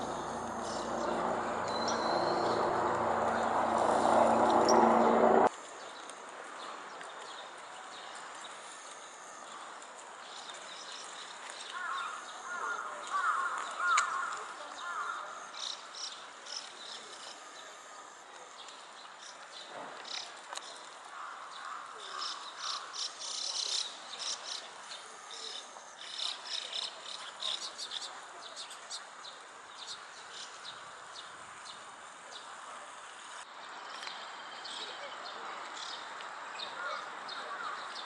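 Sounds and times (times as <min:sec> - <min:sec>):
small birds chirping: 0:00.0 - 0:03.5
outdoor background noise: 0:00.0 - 0:38.0.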